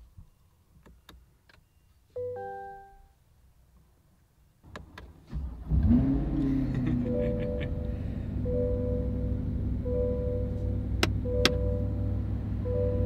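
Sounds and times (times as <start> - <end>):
dashboard chime: 2.2 - 3.1, 7.1 - 13.0
car engine starting: 4.6 - 13.0
button clicks: 11.0 - 11.8.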